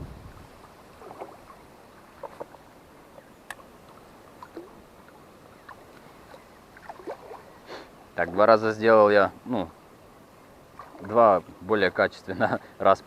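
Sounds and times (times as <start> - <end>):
faint water lapping: 0.2 - 12.9
small splashes and drips: 0.6 - 7.6, 10.7 - 11.4.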